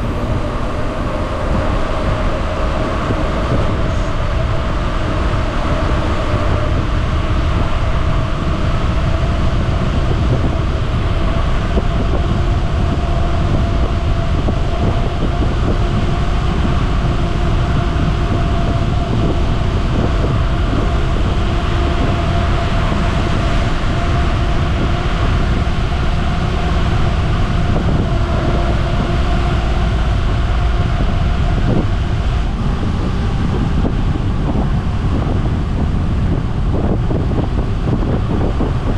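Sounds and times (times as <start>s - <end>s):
faint steady hum: 0.0s - 5.0s
bicycle wind rush rumble: 0.0s - 38.9s.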